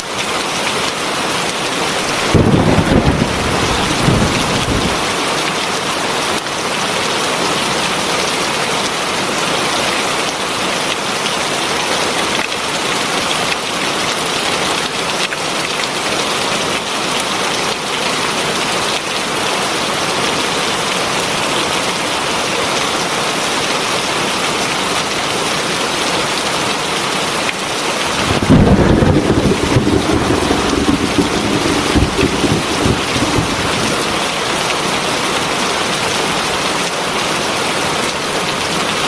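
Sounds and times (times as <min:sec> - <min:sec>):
heavy rain: 0:00.0 - 0:39.0
thunder rumbling: 0:02.1 - 0:05.2, 0:28.0 - 0:35.1.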